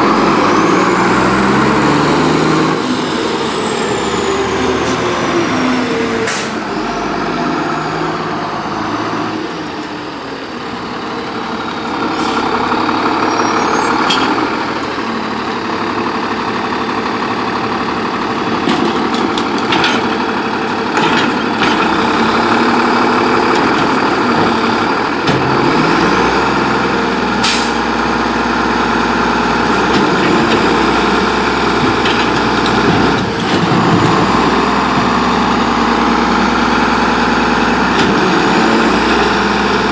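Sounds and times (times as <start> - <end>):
garbage truck diesel engine: 0.0 - 39.9
air brake hisses: 6.2 - 6.7, 27.4 - 27.9.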